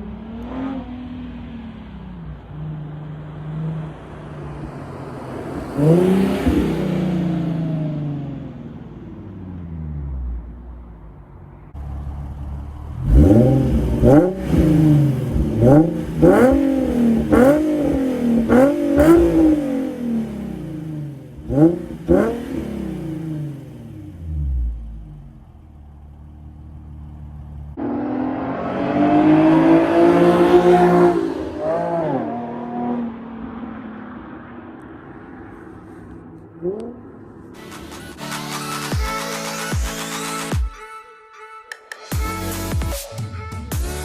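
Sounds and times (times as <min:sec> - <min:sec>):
car engine idling and revving: 0:00.0 - 0:39.6.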